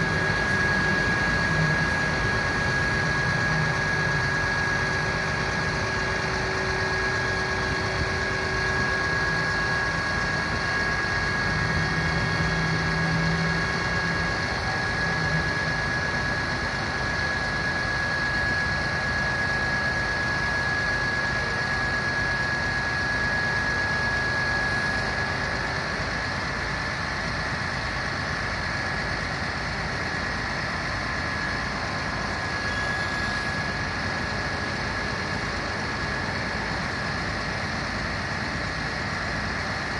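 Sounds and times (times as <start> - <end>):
diesel engine idling: 0.0 - 17.2
high-pitched whine: 0.0 - 39.9.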